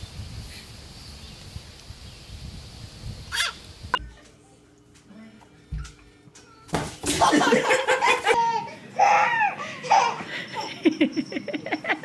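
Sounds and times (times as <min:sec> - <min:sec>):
person laughing hard: 0:07.2 - 0:08.7.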